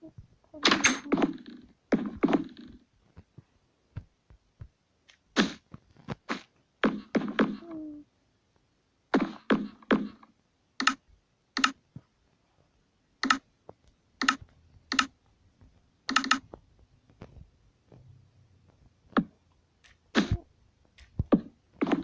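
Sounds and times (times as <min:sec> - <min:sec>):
sharp clicks and taps: 0:13.2 - 0:15.2, 0:16.1 - 0:17.4.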